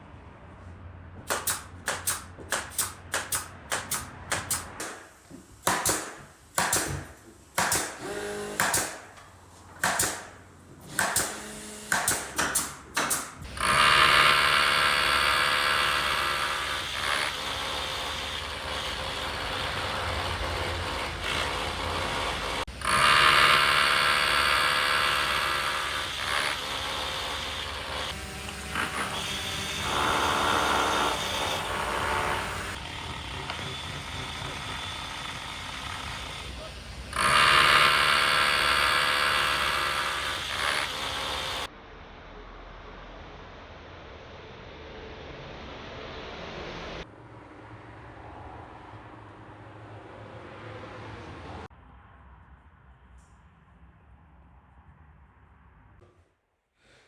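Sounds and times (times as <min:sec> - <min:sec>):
sharp knocks: 0:01.2 - 0:09.2, 0:09.8 - 0:13.4
power tool running: 0:01.3 - 0:41.7.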